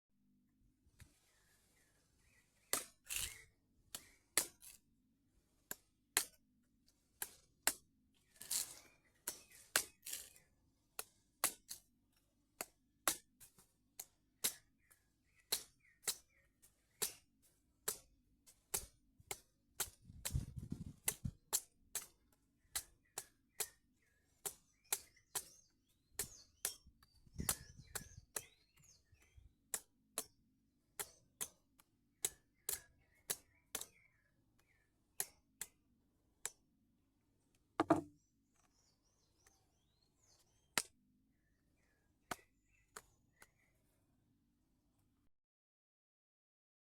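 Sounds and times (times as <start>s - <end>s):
blade chopping coconut husk: 2.6s - 4.8s, 8.4s - 10.4s, 17.8s - 18.1s, 18.7s - 20.4s.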